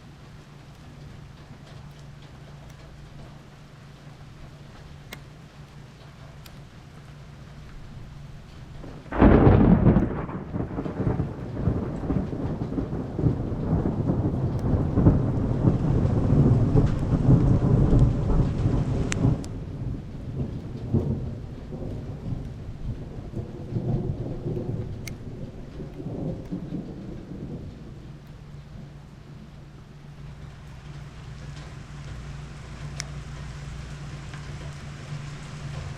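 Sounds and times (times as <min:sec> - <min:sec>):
rain falling: 0:00.0 - 0:35.9
rolling thunder rumble: 0:07.8 - 0:35.9
thunderclap: 0:08.8 - 0:29.4.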